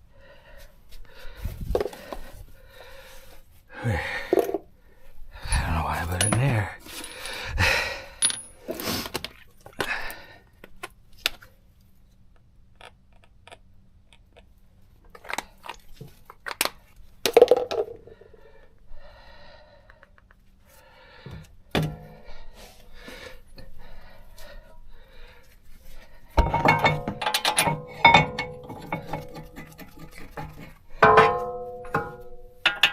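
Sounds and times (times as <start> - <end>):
metal tools clinking and knocking: 5.5 - 7.4, 26.4 - 32.9
ringing metallic clank: 26.4 - 28.8, 31.0 - 32.9.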